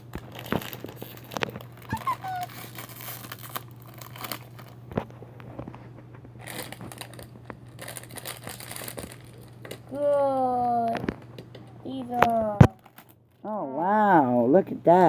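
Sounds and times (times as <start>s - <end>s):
plastic bag crinkling and tearing: 0.0s - 5.7s, 6.4s - 11.3s, 12.2s - 13.4s
sharp clicks and crackles: 0.1s - 13.4s.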